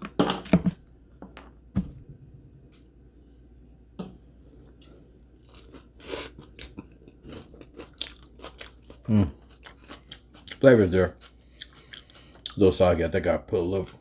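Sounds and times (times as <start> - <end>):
person chewing salad: 4.6 - 12.6.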